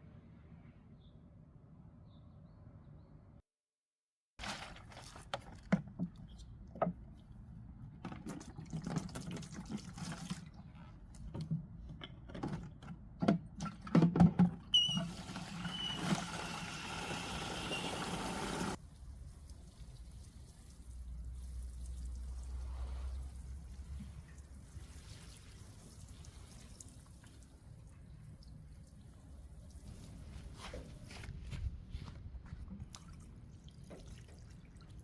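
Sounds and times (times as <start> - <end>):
running water: 14.8 - 30.3.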